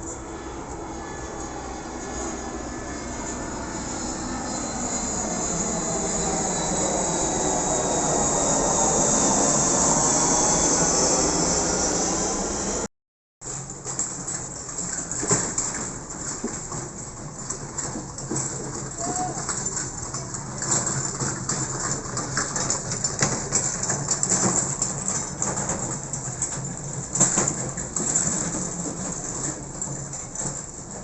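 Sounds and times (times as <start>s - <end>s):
low hum: 0.0s - 12.9s.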